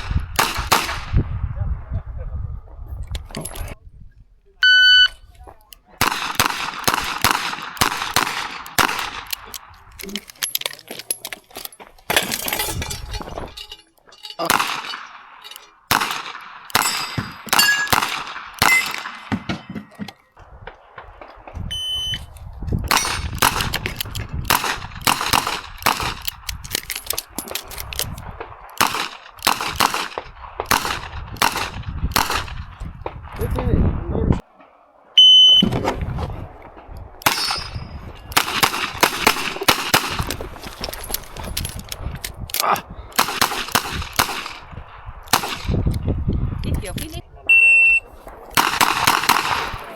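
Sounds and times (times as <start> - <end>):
metal targets clanging: 8.4 - 20.3, 37.2 - 38.6.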